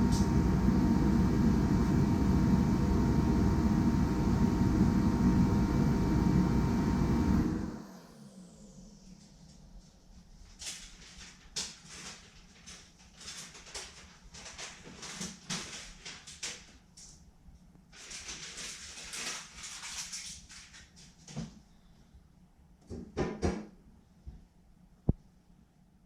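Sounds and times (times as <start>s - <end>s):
low steady hum: 0.0s - 10.5s.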